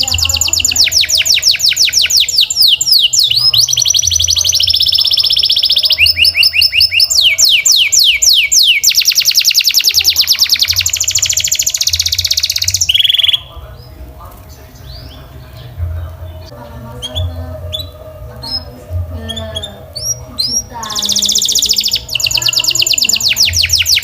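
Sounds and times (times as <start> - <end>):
canary singing: 0.0 - 24.0.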